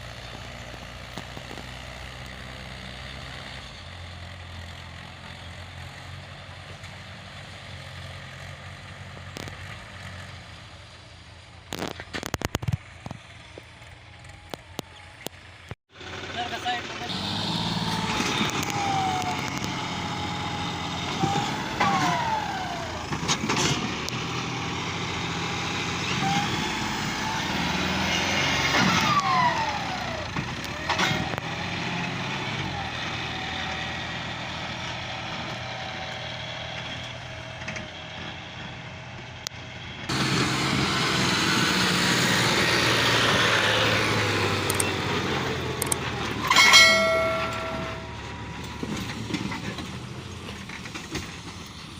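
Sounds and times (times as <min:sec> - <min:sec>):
tractor engines running: 0:00.0 - 0:51.9
short pitched tone: 0:46.4 - 0:48.3.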